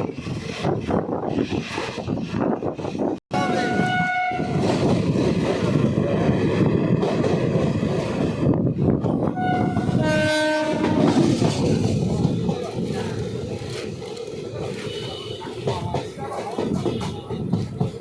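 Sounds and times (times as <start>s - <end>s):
train rumbling and clattering: 0.0s - 18.0s
train horn: 3.3s - 4.7s, 9.3s - 11.3s, 14.8s - 15.7s.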